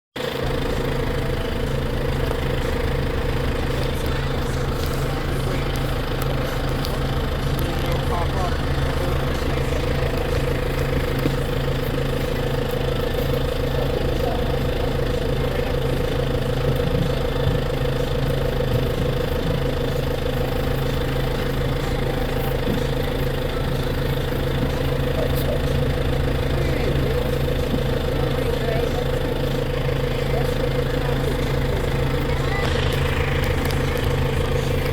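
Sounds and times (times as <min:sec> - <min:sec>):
tractor engine droning: 0:00.2 - 0:34.9.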